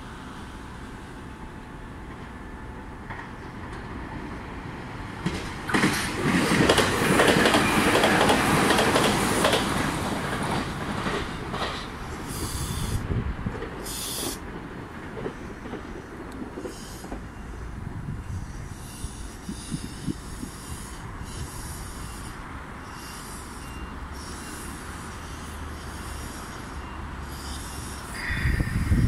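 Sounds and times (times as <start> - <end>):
train wheels clattering: 5.1 - 17.6
high-pitched wheel squeals: 18.2 - 29.0.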